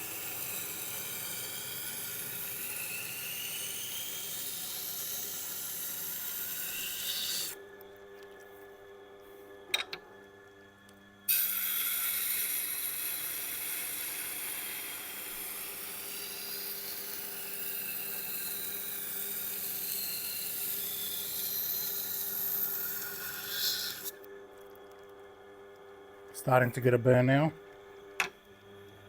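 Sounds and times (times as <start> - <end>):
knife edge grinding on wheel: 0.0 - 7.6, 11.3 - 24.2.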